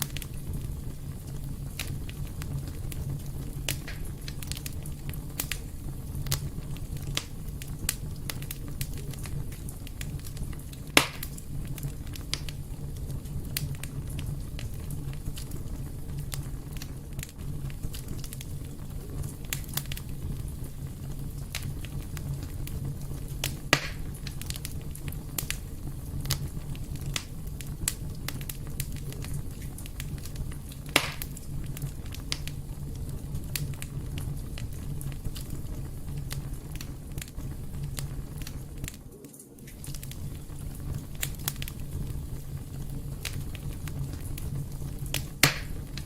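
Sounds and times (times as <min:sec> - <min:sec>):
wood fire crackling: 0:00.0 - 0:46.0.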